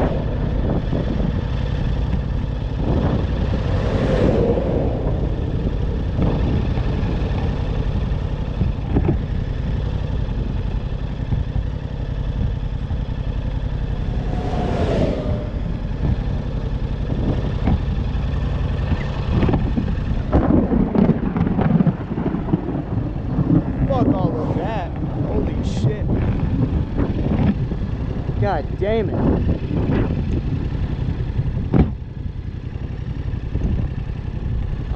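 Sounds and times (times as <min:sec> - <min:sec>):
vehicle engine and road rumble: 0:00.0 - 0:34.9
vehicle passing whoosh: 0:02.8 - 0:06.5, 0:13.4 - 0:18.0, 0:23.0 - 0:26.2.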